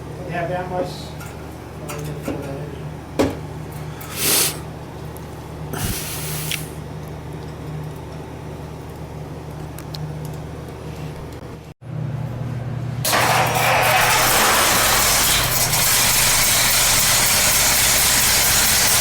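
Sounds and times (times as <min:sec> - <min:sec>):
low mechanical hum: 0:00.0 - 0:19.0
bursts of hissing: 0:13.1 - 0:19.0.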